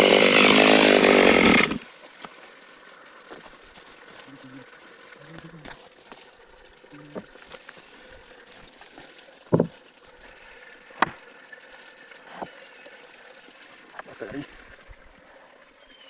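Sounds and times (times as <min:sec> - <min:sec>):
sharp knocks: 0:09.5 - 0:09.8.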